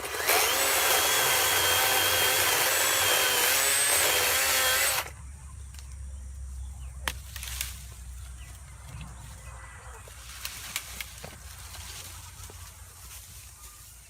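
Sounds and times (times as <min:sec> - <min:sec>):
electric chainsaw cutting wood: 0:00.0 - 0:05.1.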